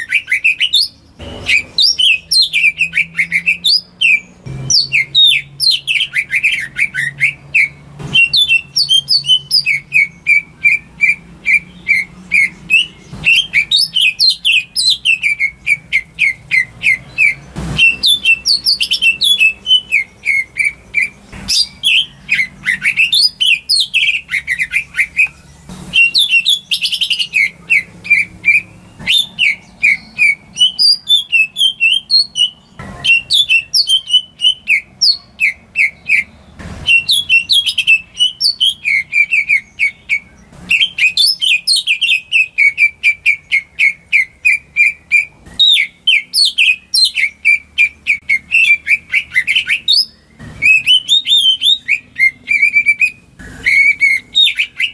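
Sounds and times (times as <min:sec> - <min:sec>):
bird singing chirps and trills: 0:00.0 - 0:54.9.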